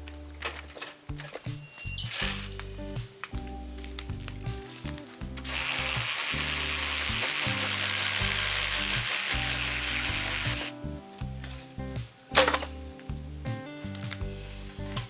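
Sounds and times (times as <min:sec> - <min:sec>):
reciprocating saw cutting bamboo: 0:05.4 - 0:10.7.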